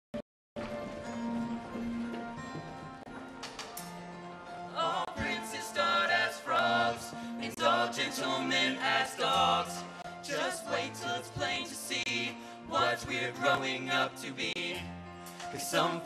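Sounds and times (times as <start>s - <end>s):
instrumental accompaniment: 0.6s - 16.0s
men singing in unison: 4.8s - 16.0s.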